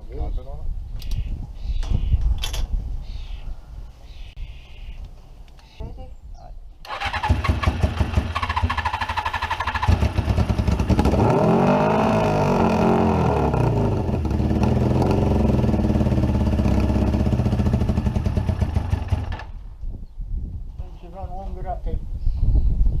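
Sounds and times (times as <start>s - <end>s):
electric starter cranking: 6.9s - 10.2s
motorcycle engine running: 6.9s - 19.6s.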